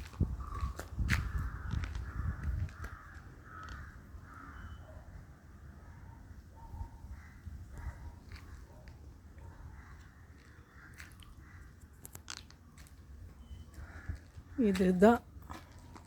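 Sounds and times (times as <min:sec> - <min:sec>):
crows cawing: 0:00.4 - 0:04.9, 0:07.1 - 0:07.5, 0:09.7 - 0:11.9, 0:13.7 - 0:14.6.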